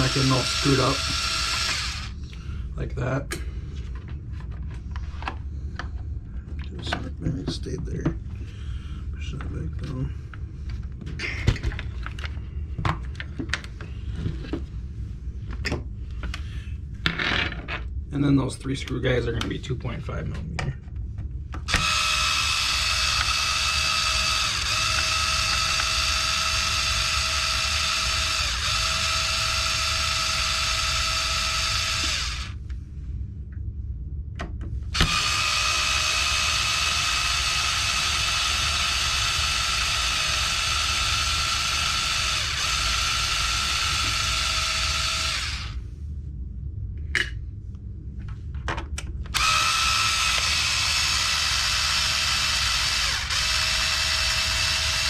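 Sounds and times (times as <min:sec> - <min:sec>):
power driver motor whining: 0:00.0 - 0:02.2, 0:21.7 - 0:32.6, 0:35.0 - 0:45.8, 0:49.3 - 0:55.0.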